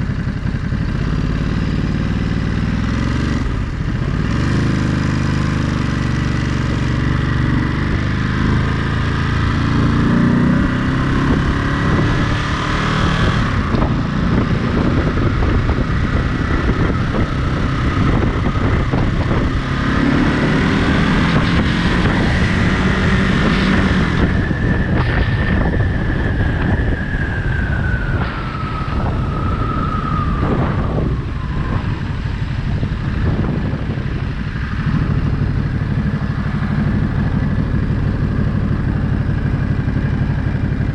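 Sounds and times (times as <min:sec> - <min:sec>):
motorcycle engine accelerating: 0:00.0 - 0:40.9
wind rushing over microphone: 0:06.4 - 0:40.9.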